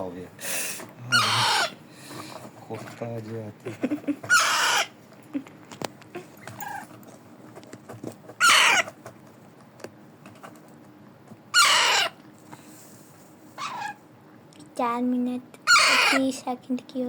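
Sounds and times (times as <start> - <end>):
parrot chick squawking: 1.1 - 1.8, 4.2 - 5.0, 8.4 - 9.0, 11.5 - 12.2, 13.6 - 14.0, 15.6 - 16.3.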